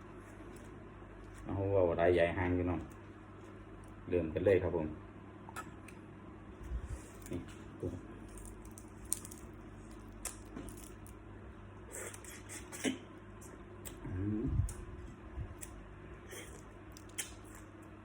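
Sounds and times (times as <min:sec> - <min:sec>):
shrimp shells cracking: 0:08.2 - 0:11.3
short low vocal sound: 0:13.9 - 0:15.0.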